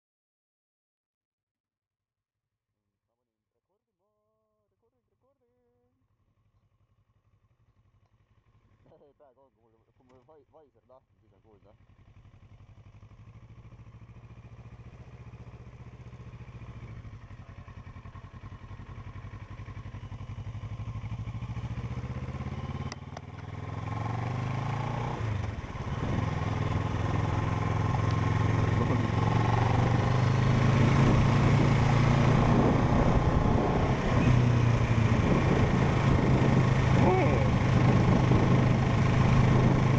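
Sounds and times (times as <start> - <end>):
motorcycle engine running: 6.1 - 9.0, 9.9 - 39.9
wind noise: 30.9 - 39.9.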